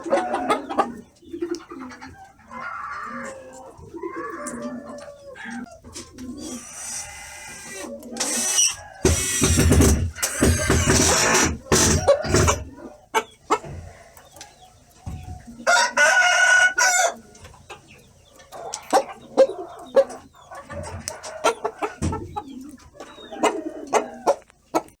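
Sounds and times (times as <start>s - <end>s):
rooster crowing: 8.3s - 9.5s, 15.6s - 17.2s.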